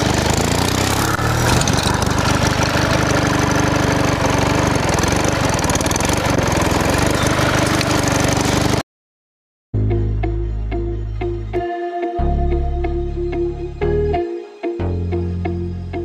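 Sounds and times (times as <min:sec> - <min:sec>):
small engine knocking: 0:00.0 - 0:08.8.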